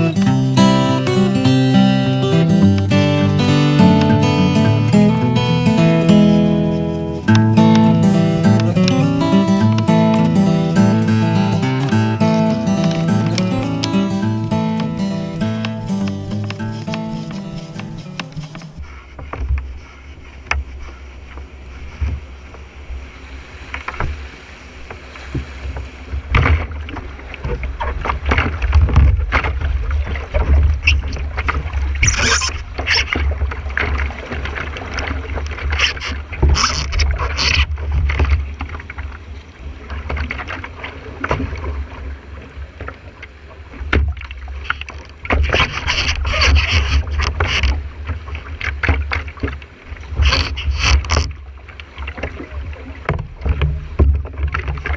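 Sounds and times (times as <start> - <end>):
water splashing around canoe: 0.0 - 54.9.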